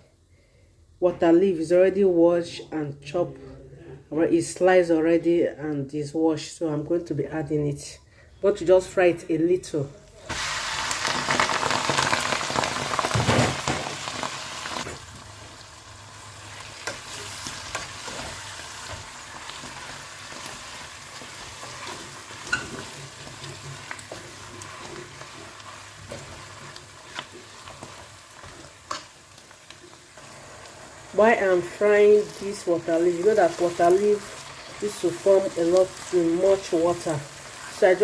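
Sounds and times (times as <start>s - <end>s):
leaves frying in oil: 10.2s - 38.0s.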